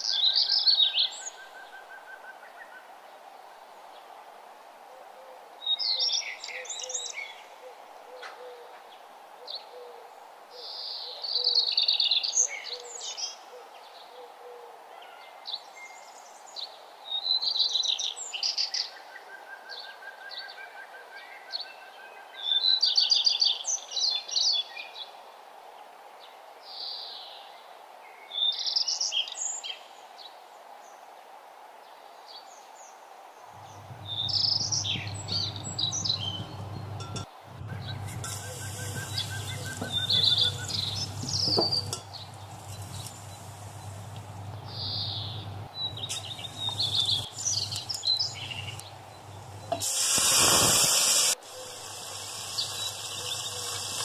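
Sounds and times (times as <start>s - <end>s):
steady background hiss: 0.0s - 54.0s
birds chirping and trilling: 33.5s - 54.0s.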